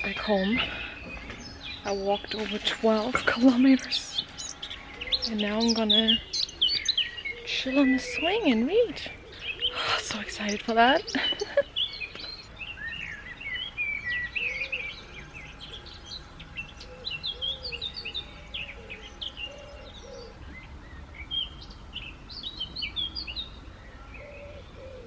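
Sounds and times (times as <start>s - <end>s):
songbirds singing and chirping: 0.0s - 25.0s.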